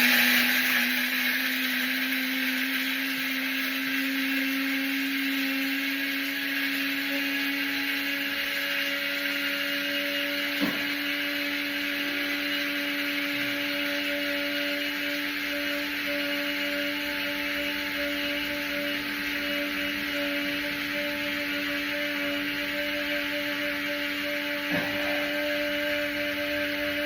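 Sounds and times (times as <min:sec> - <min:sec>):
small electric motor humming: 0:00.0 - 0:27.0.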